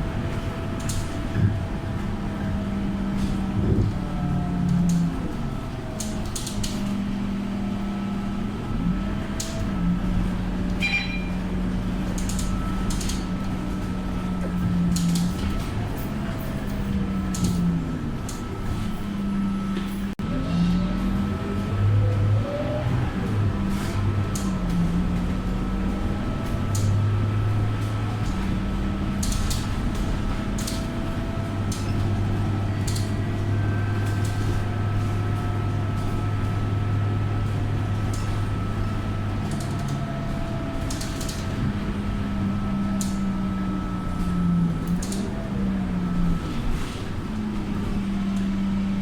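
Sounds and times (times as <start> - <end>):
bus diesel engine running: 0.0 - 49.0
rattles and clicks: 29.1 - 33.2.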